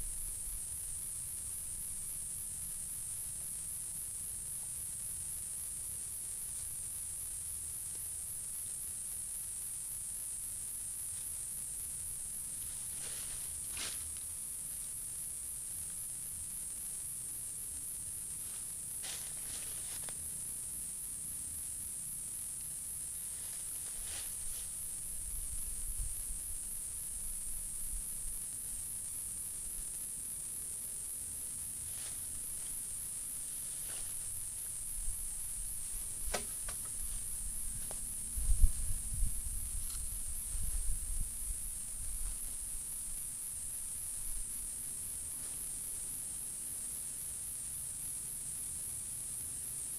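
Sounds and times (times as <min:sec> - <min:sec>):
high-pitched insect chorus: 0:00.0 - 0:49.9
soft rustles: 0:12.6 - 0:14.2, 0:18.4 - 0:20.2, 0:23.2 - 0:24.8, 0:31.8 - 0:39.1
faint low rumble: 0:36.9 - 0:44.9.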